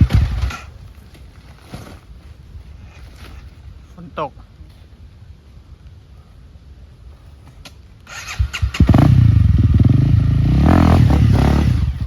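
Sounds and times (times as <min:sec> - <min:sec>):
dirt bike engine revving: 0:00.0 - 0:00.7, 0:08.1 - 0:12.0.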